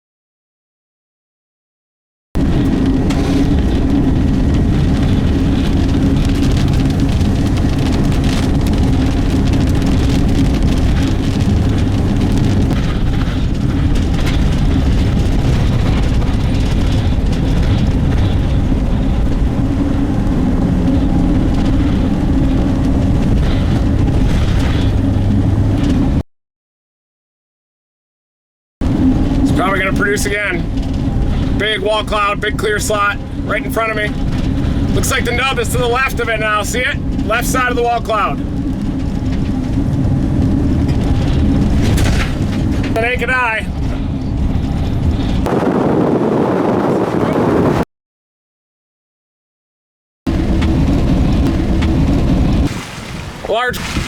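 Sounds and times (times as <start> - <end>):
vehicle humming: 2.4 - 26.2, 28.8 - 47.8, 50.3 - 54.0.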